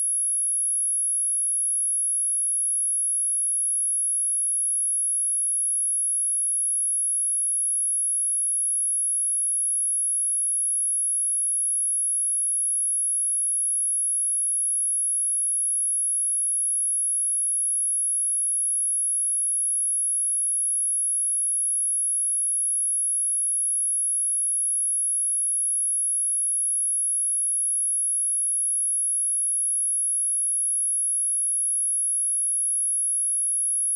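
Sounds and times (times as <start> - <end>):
high-pitched sine test tone: 20.4 - 33.9.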